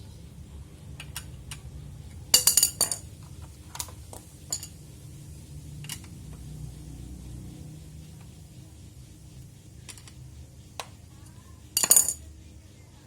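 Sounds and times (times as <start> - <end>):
metal tools clinking: 2.4 - 3.1, 4.5 - 4.8.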